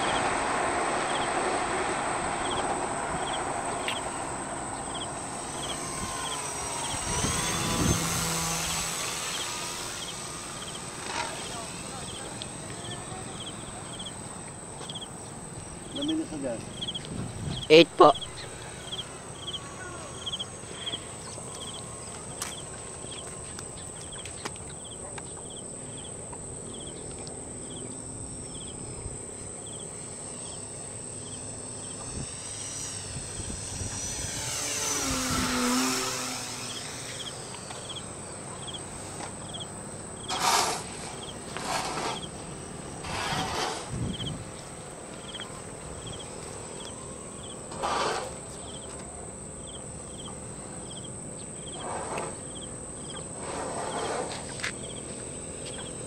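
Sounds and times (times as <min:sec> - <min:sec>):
crickets chirping: 0:00.0 - 0:56.0
high insect buzz: 0:00.0 - 0:56.0
model airplane propeller drone: 0:00.0 - 0:56.0
short rushing noises: 0:38.8 - 0:42.4, 0:43.0 - 0:44.4.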